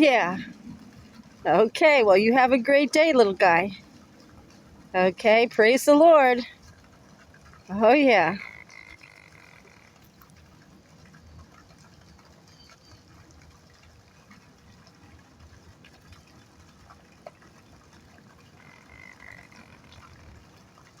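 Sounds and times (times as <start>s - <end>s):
low uneven rumble: 0.0s - 21.0s
small ticks: 6.5s - 15.0s, 15.9s - 20.6s.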